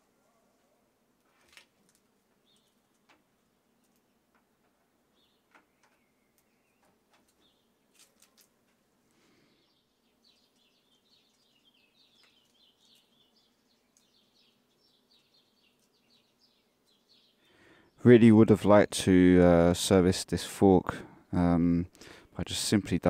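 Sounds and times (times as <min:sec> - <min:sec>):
faint birds chirping: 0:01.8 - 0:19.3, 0:20.6 - 0:23.0
faint ticks: 0:13.9 - 0:14.1.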